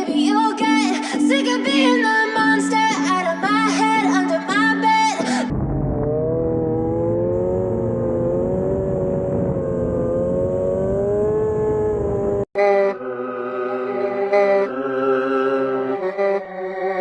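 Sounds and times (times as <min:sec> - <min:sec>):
music: 0:00.0 - 0:05.5
motorcycle engine at high revs: 0:05.6 - 0:16.5.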